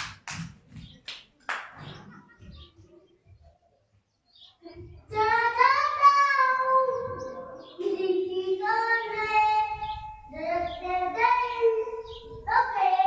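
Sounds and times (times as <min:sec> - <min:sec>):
child singing long notes: 0:05.1 - 0:13.0.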